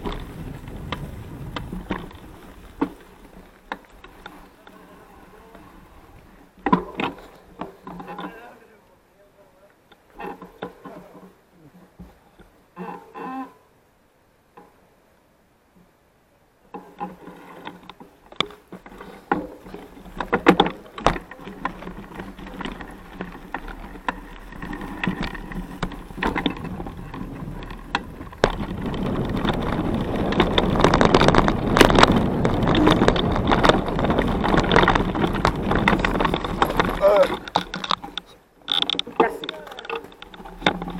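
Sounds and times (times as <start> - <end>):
tyre and wind rushing: 0.0 - 8.4, 18.1 - 40.9
bike rattling and clicking: 0.0 - 8.6, 9.8 - 11.4, 16.7 - 40.9.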